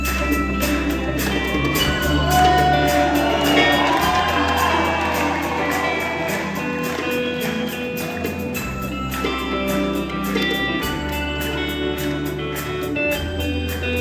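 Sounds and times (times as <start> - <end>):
live rock band playing: 0.0 - 14.0
audience cheering and whooping: 1.0 - 8.6.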